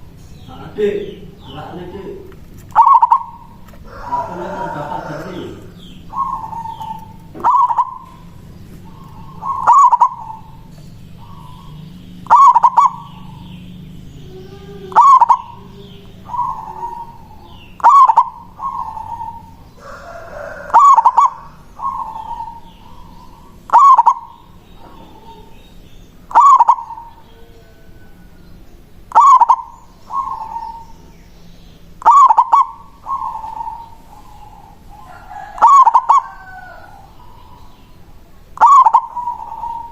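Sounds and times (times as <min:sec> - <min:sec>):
dove cooing: 0:00.0 - 0:31.1, 0:31.8 - 0:39.9.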